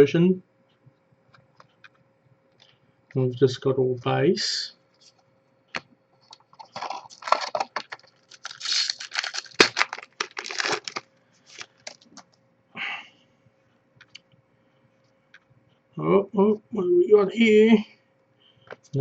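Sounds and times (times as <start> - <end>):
foil wrapper crinkling: 6.5 - 12.4.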